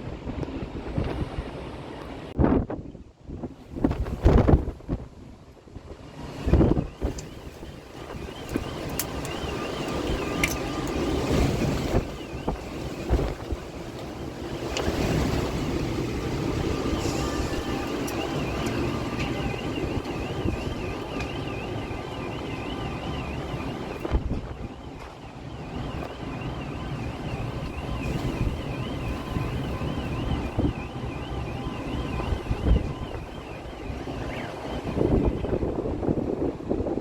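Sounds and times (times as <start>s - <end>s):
wind buffeting microphone: 0.0s - 37.0s
warbling electronic alarm: 6.0s - 37.0s
heavy rain: 7.1s - 35.2s.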